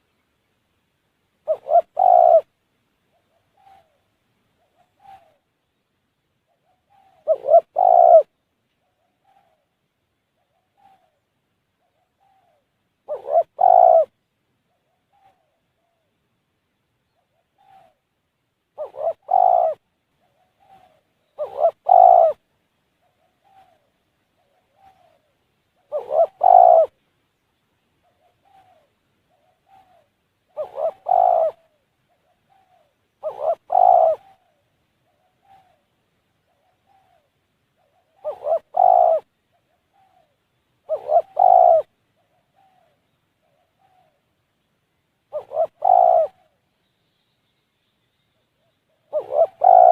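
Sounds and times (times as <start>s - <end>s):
dove cooing: 1.4s - 2.5s, 3.1s - 5.5s, 6.5s - 9.8s, 10.4s - 16.1s, 17.1s - 18.0s, 18.8s - 22.4s, 23.0s - 27.0s, 28.0s - 44.3s, 45.3s - 46.6s, 48.6s - 49.9s.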